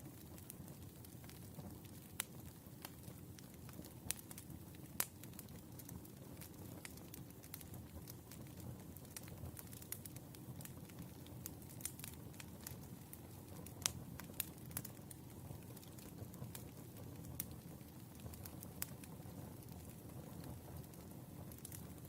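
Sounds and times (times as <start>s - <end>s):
firewood crackling and popping: 0.0s - 22.0s
low steady fire rumble: 0.0s - 22.0s.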